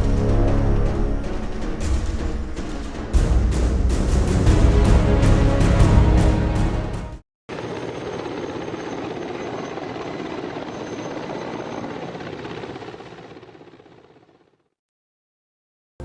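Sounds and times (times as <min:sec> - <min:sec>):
loud music: 0:00.0 - 0:07.2
helicopter rotor and turbine: 0:07.5 - 0:14.8.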